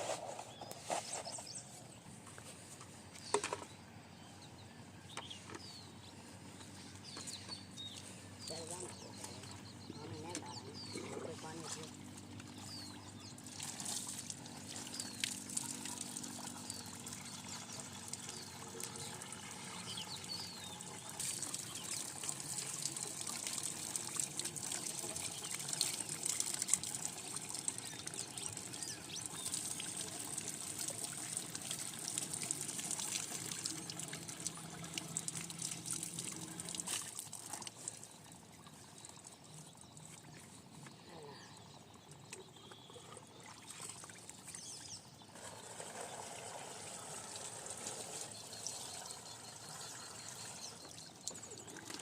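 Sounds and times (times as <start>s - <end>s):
water pouring and splashing: 13.4s - 40.6s, 43.1s - 52.0s.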